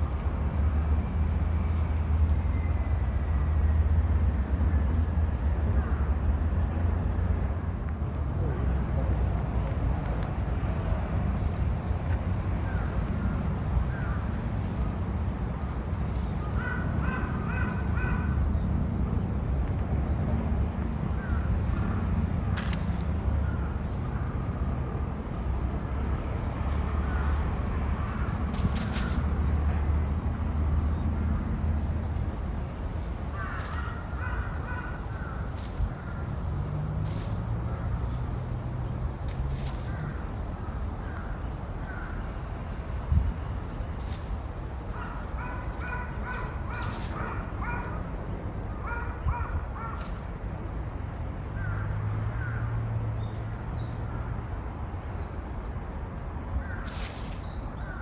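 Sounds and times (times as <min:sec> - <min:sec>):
steady low rumble: 0:00.0 - 0:51.6
birds harsh falling calls: 0:12.6 - 0:14.6, 0:16.0 - 0:18.7, 0:21.1 - 0:24.3, 0:33.0 - 0:43.0, 0:43.6 - 0:50.7, 0:56.6 - 0:58.0
bird's harsh call: 0:16.2 - 0:18.6, 0:33.3 - 0:36.3, 0:44.9 - 0:48.0, 0:56.6 - 0:58.0.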